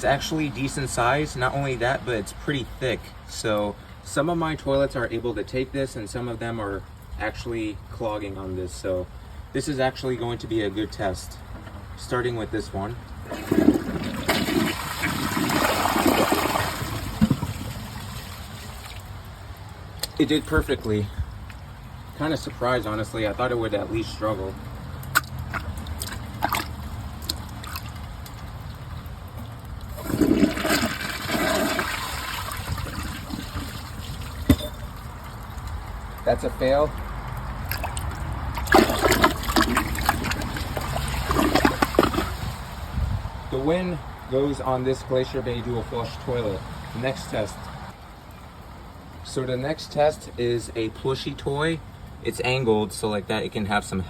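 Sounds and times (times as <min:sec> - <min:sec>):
water rushing down toilet bowl: 0:13.1 - 0:19.0, 0:29.8 - 0:35.5, 0:37.5 - 0:42.8.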